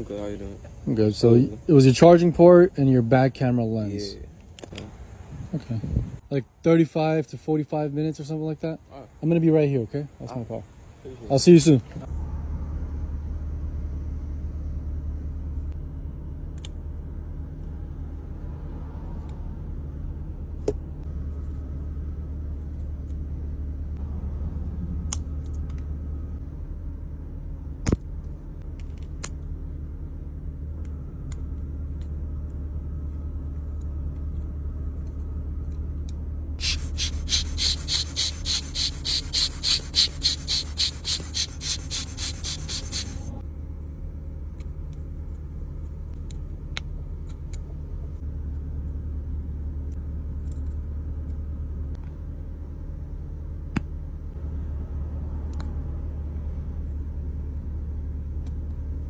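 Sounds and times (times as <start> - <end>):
car rumbling: 8.0 - 59.0.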